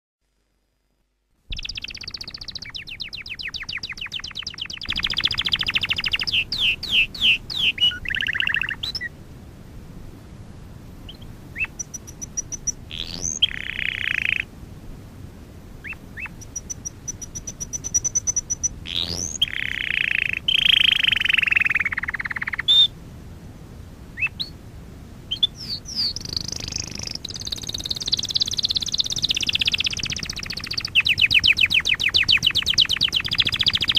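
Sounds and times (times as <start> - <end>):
canary singing: 1.5 - 9.1, 11.1 - 14.5, 15.8 - 22.9, 24.2 - 24.6, 25.3 - 33.9.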